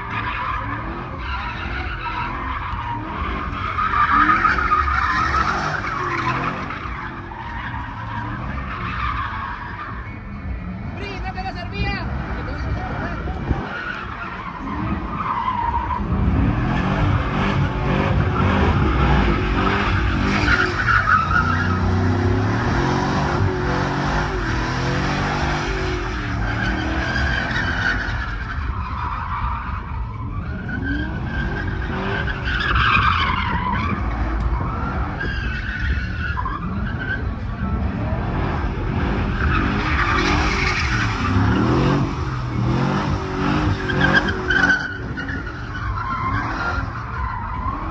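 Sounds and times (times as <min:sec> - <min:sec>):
tyres squealing on pavement: 0:00.0 - 0:38.2, 0:38.9 - 0:47.9
truck engine revving: 0:12.0 - 0:28.8, 0:36.7 - 0:47.9.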